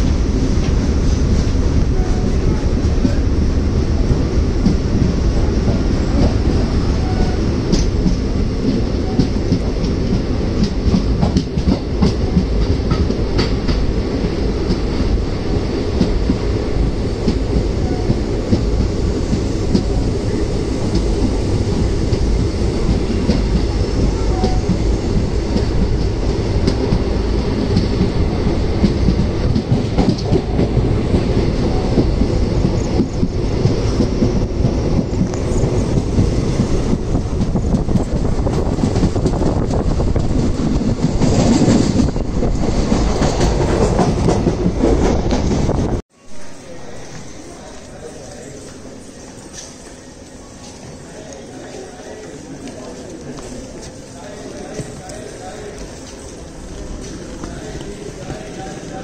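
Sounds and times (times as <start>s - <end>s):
train wheels rumbling on rails: 0.0s - 59.0s
clicks and clacks: 7.7s - 13.9s, 28.8s - 31.3s.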